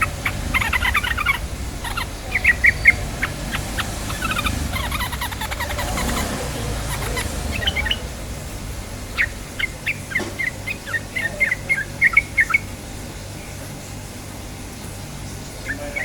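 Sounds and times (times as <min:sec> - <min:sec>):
bulbul chirping and bubbling song: 0:00.0 - 0:13.9, 0:15.1 - 0:16.0.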